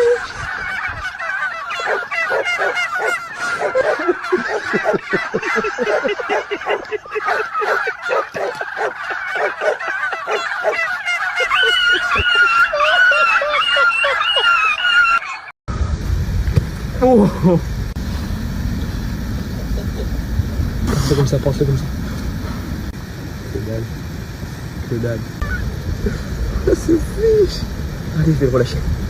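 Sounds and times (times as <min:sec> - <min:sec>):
turkeys gobbling: 0:00.0 - 0:15.5, 0:25.0 - 0:28.7.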